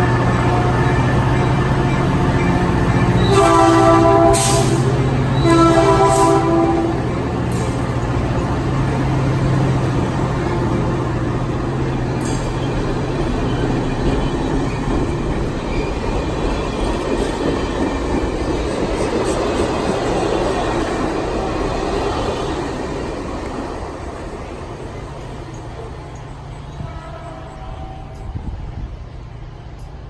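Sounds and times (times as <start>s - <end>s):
train horn blast: 0.0s - 1.3s, 2.7s - 7.4s, 26.8s - 28.6s
train engine hum: 0.0s - 30.0s
wheels rumbling on rail: 0.0s - 30.0s.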